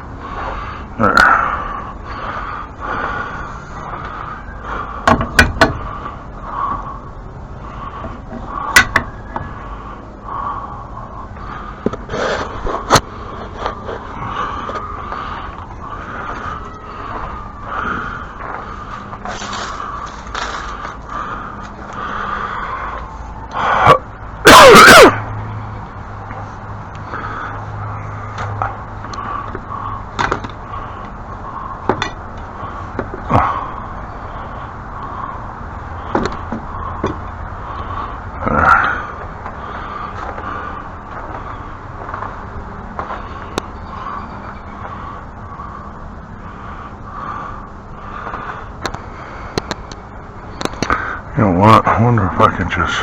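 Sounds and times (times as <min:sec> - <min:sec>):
steady background hum: 0:00.0 - 0:53.0
steady background noise: 0:00.0 - 0:53.0
rustling scrape: 0:18.9 - 0:21.0.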